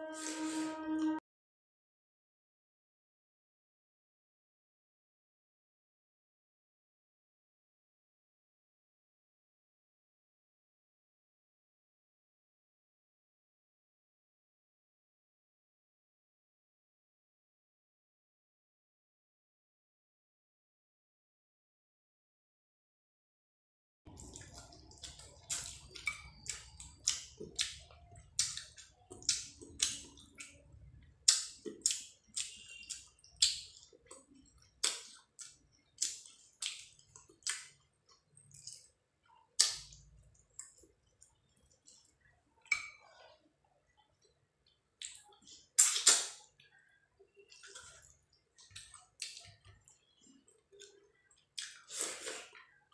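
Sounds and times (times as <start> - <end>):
close chewing with mouth clicks: 24.1 - 43.4, 44.0 - 52.8.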